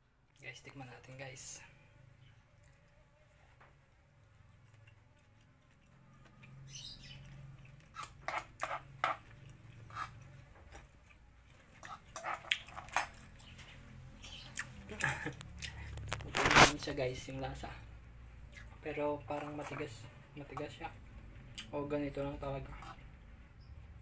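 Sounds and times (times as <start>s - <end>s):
person chewing meat: 4.0s - 16.6s.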